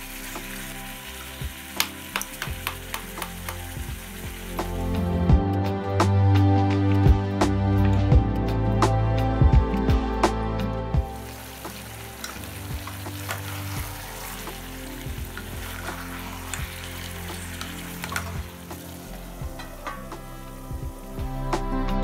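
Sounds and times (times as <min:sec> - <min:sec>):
curry sizzling in a pan: 0:00.0 - 0:05.4, 0:11.0 - 0:22.0
wooden spatula scraping a pan: 0:11.3 - 0:20.3.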